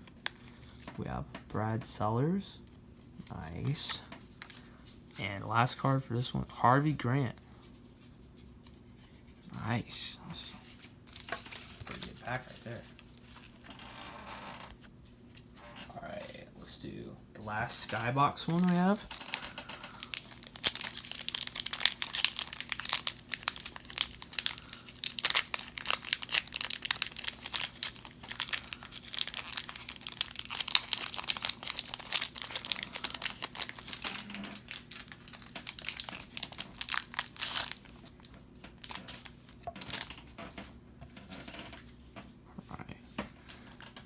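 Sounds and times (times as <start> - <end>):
plastic wrapper crinkling and tearing: 10.6 - 14.0, 17.7 - 40.2.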